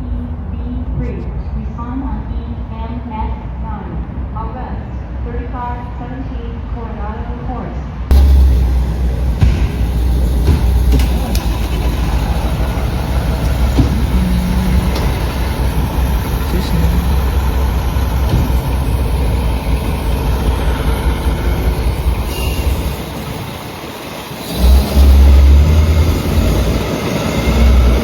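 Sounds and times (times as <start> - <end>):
road noise: 8.0 - 28.0
fire truck engine rumble: 8.1 - 28.0.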